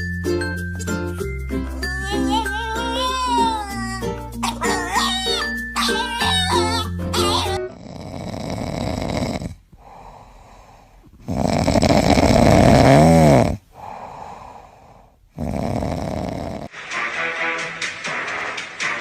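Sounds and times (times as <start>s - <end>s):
music: 0.0s - 7.8s, 16.7s - 19.0s
animal snoring: 7.7s - 16.7s.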